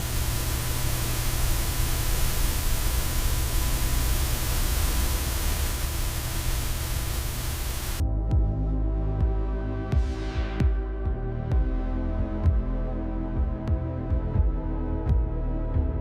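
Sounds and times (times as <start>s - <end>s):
faint steady tone: 0.0s - 8.0s
low hum: 0.0s - 8.0s
static-like hiss: 0.0s - 8.0s.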